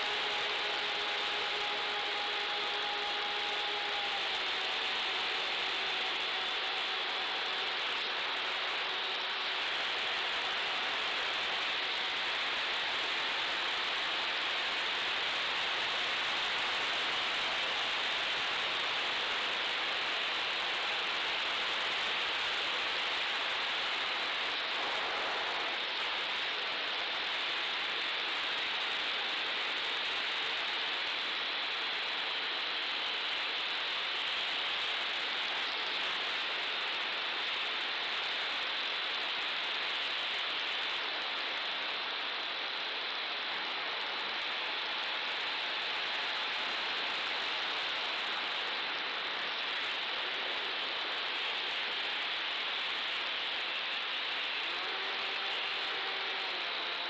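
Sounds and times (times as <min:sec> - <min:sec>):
model airplane propeller and airflow: 0:00.0 - 0:16.8.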